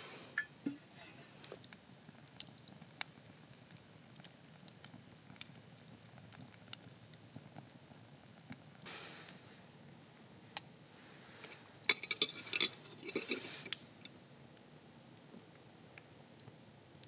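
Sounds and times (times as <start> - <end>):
campfire crackling: 0.0 - 17.0
faint hiss: 0.0 - 17.0.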